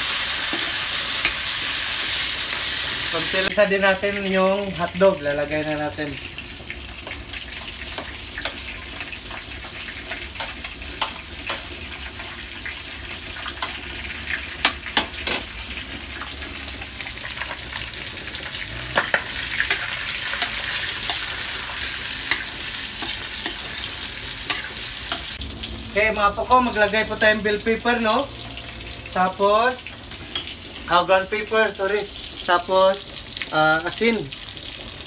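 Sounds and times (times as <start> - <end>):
metal spoon scraping a pan: 0.0 - 2.8, 7.8 - 12.4, 17.0 - 25.4
meat sizzling in hot oil: 0.0 - 35.0.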